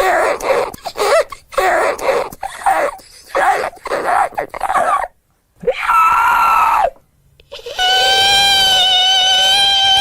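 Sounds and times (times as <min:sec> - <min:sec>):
man screaming in falsetto: 0:05.6 - 0:07.0, 0:07.6 - 0:10.0.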